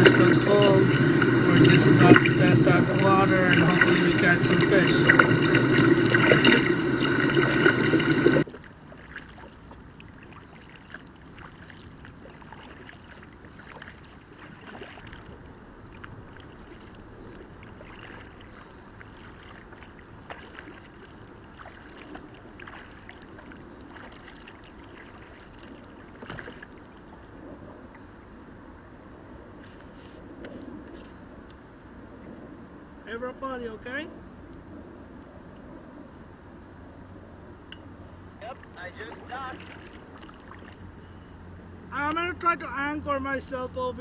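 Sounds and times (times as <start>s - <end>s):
loud steady tones: 0.0s - 8.4s
paddle dipping and swishing: 0.0s - 28.0s, 38.4s - 41.3s.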